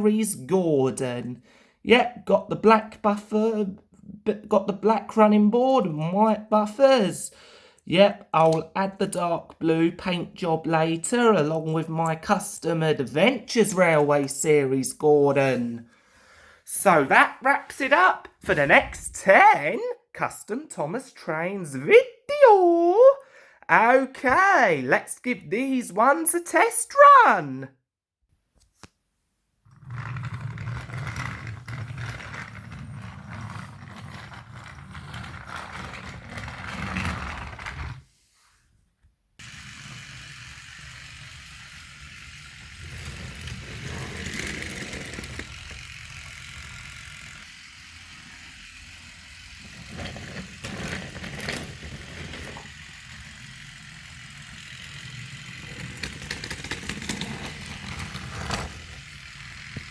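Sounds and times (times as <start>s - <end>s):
toy train motor whirring: 29.7s - 38.0s, 39.4s - 59.9s
toy train wheels clattering: 30.0s - 37.8s, 39.4s - 59.9s.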